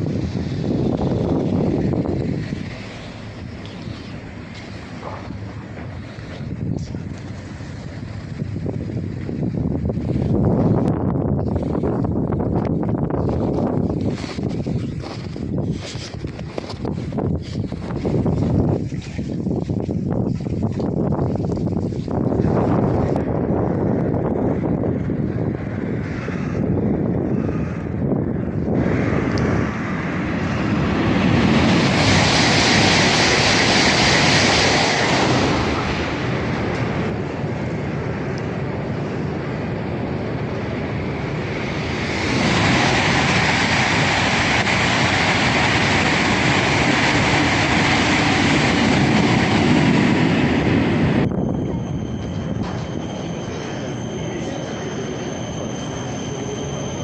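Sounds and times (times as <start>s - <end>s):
train wheels on rails: 0.0s - 8.1s, 28.5s - 57.0s.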